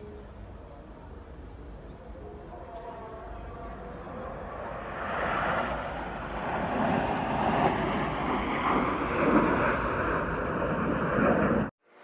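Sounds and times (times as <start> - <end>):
aircraft flying past: 3.5 - 11.7.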